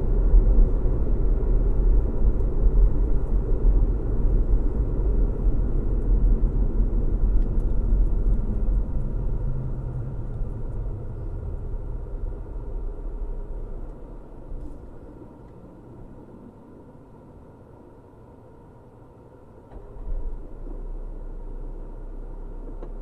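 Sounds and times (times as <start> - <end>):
car road and engine rumble: 0.0 - 23.0.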